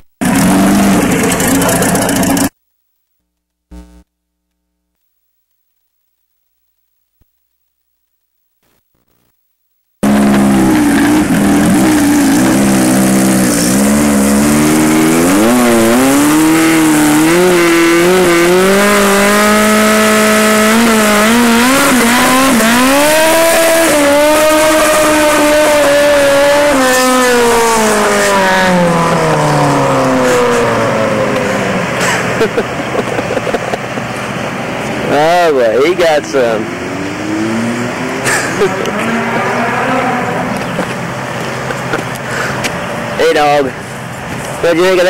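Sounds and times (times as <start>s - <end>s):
motorcycle engine revving hard: 0.0s - 2.6s, 10.0s - 33.7s, 36.0s - 41.3s.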